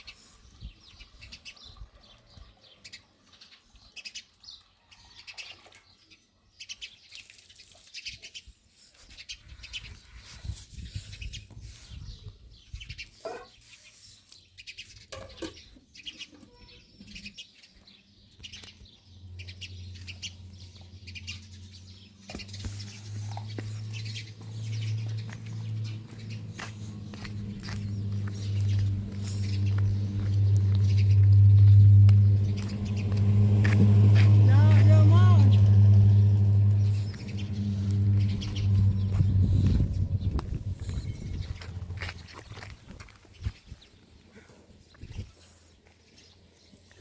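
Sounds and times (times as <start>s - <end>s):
small birds chirping: 0.0s - 47.0s
steady low hum: 22.7s - 42.3s.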